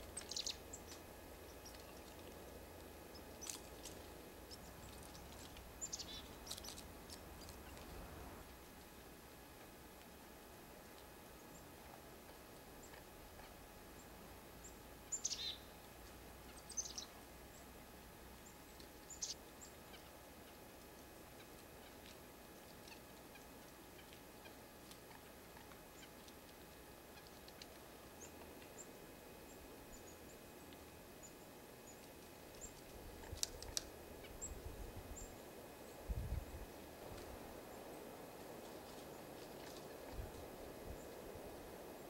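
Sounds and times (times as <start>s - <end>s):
small birds chirping: 0.0s - 9.1s, 10.8s - 42.0s
wind rumbling on microphone: 36.0s - 37.6s, 39.2s - 42.0s.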